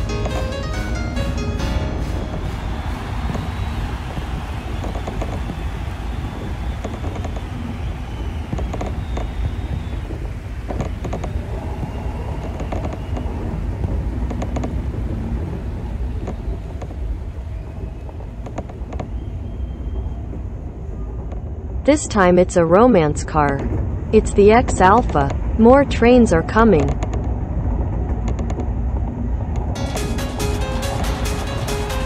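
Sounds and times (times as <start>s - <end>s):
train wheels rumbling on rails: 0.0s - 22.0s, 26.8s - 32.0s
wheels clicking over rail joints: 2.8s - 14.9s.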